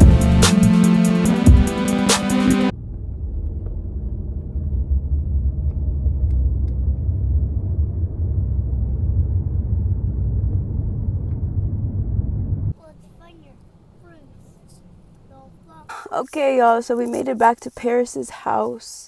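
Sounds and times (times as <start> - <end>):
moving car rumble: 2.7 - 12.8.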